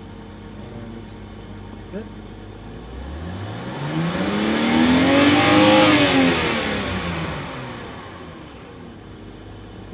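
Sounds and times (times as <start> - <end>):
car engine passing by: 3.0 - 8.7.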